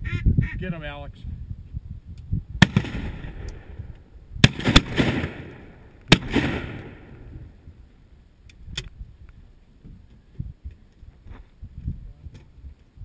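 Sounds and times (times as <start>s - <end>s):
shotgun blasts with echo: 2.6s - 3.8s, 4.4s - 7.4s.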